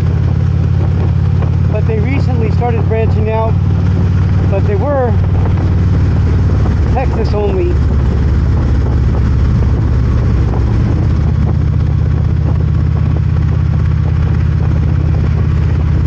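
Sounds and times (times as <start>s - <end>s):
motorcycle engine drone: 0.0s - 16.0s
wind and road noise: 0.0s - 16.0s.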